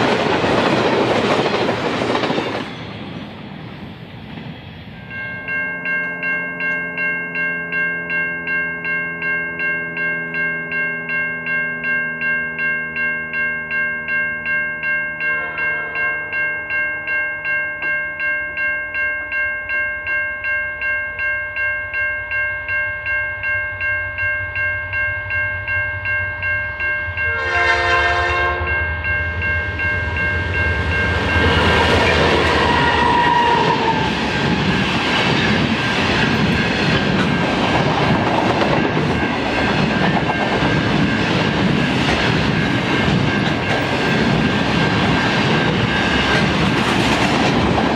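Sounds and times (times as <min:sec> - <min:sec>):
train wheels on rails: 0:00.0 - 0:08.5, 0:26.8 - 0:47.9
level crossing bells ringing: 0:05.0 - 0:47.7
locomotive horn blast: 0:15.2 - 0:16.4, 0:27.3 - 0:28.8, 0:31.4 - 0:34.1.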